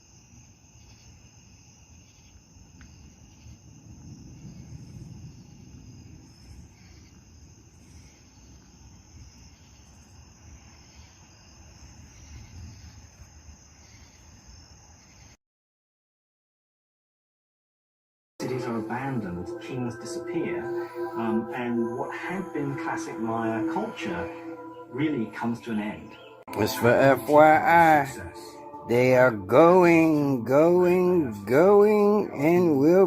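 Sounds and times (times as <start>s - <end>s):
crickets chirping: 0.0s - 15.4s, 18.4s - 33.0s.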